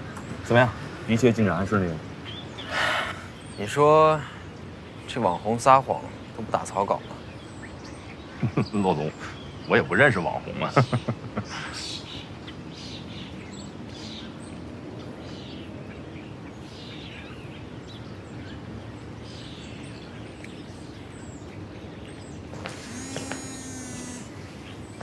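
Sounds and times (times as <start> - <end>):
birds chirping: 0.0 - 25.0
mobile phone ringing: 22.8 - 24.3.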